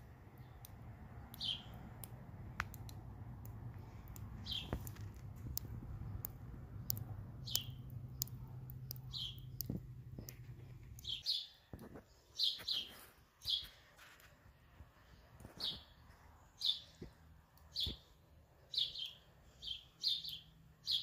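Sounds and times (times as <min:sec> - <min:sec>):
low steady hum: 0:00.0 - 0:11.2
bird chirping: 0:00.3 - 0:02.0, 0:03.9 - 0:05.1, 0:06.8 - 0:13.8, 0:15.4 - 0:21.0.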